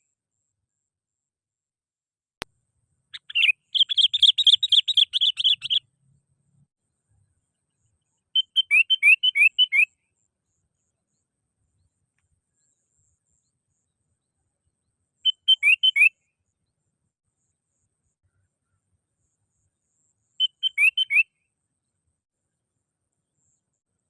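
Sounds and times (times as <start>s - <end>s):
bulbul singing whistled notes: 3.2s - 5.8s, 8.4s - 10.0s, 15.2s - 16.2s, 20.4s - 21.4s.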